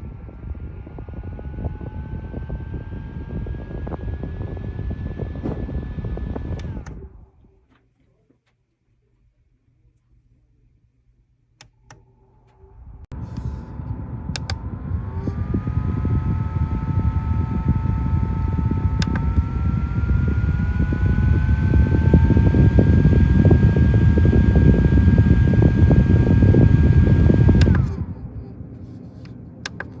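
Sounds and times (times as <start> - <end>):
desk fan motor whine: 0.0 - 7.5, 12.7 - 30.0
air buffeting microphone: 12.8 - 29.2
fan switch click: 13.2 - 15.4, 17.5 - 20.0, 25.8 - 28.1, 29.2 - 30.0.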